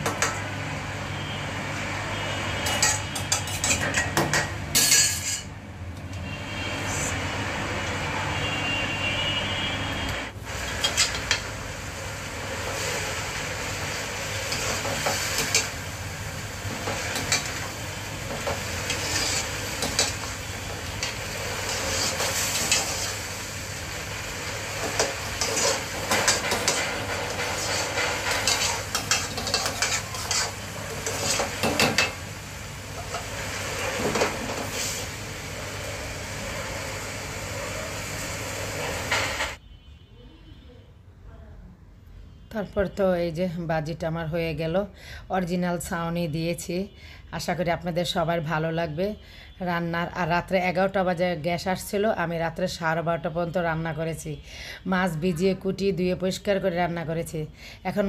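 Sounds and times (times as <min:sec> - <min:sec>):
cabbage sizzling in a pot: 0:10.4 - 0:39.6
spatula scraping a steel pot: 0:18.3 - 0:20.4, 0:21.0 - 0:23.2, 0:24.9 - 0:32.1.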